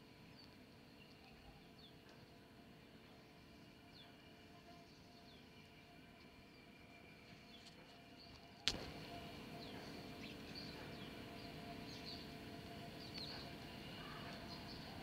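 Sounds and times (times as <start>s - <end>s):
bird chirps: 12.9s - 15.0s.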